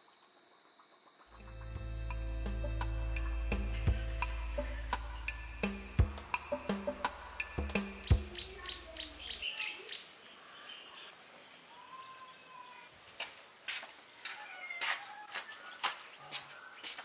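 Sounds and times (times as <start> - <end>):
music: 1.4 - 8.9
birds chirping and calling: 1.4 - 11.2.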